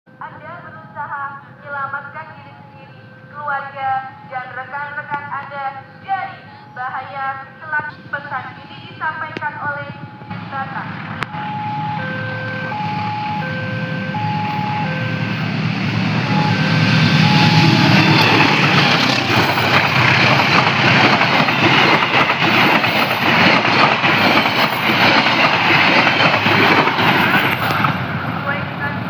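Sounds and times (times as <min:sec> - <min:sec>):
train rumbling on rails: 0:07.8 - 0:29.0.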